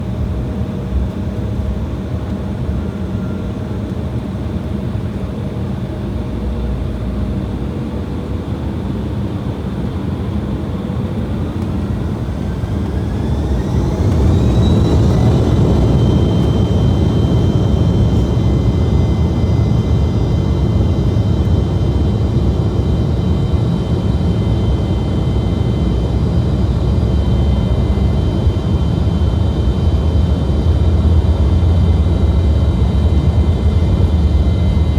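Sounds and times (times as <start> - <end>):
jet engines spooling up: 9.1 - 34.9.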